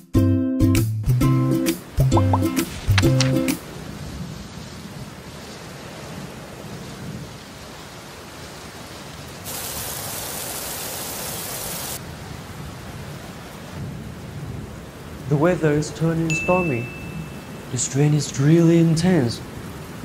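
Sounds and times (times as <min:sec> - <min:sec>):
steady rain: 0:01.6 - 0:20.0
downpour hiss: 0:01.7 - 0:12.1, 0:15.2 - 0:20.0.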